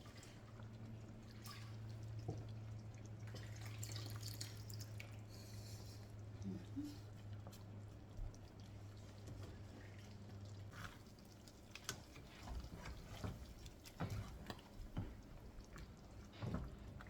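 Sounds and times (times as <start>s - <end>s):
soup bubbling in a pot: 0.0s - 17.0s.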